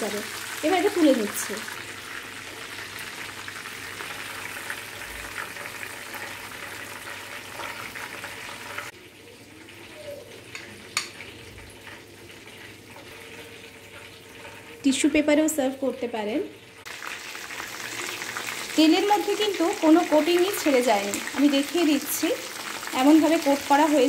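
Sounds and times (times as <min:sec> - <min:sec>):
oil sizzling and bubbling: 0:00.0 - 0:24.0.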